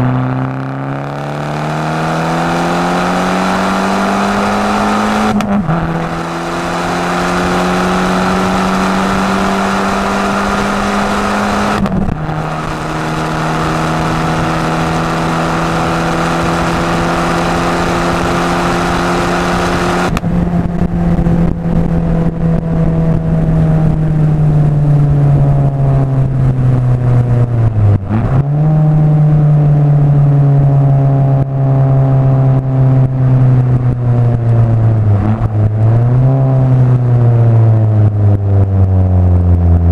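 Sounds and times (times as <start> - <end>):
car engine accelerating: 0.0 - 39.9
exhaust pops and crackles: 11.2 - 15.1, 20.0 - 24.0.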